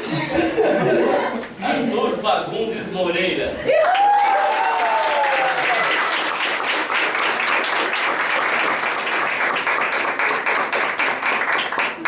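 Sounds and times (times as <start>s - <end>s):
audience applauding: 3.7s - 12.0s.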